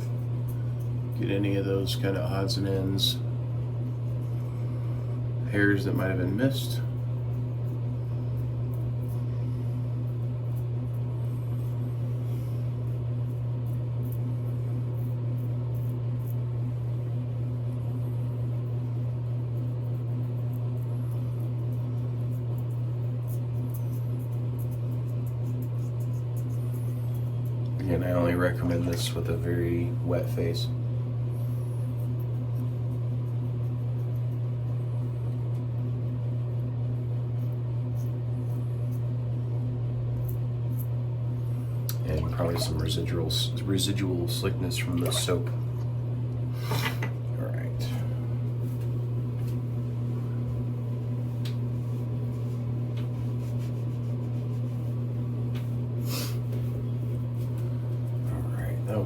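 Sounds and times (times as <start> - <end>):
low motor hum: 0.0 - 59.0
razor scraping skin: 3.6 - 29.4, 31.3 - 39.4, 40.2 - 41.7, 51.7 - 55.3.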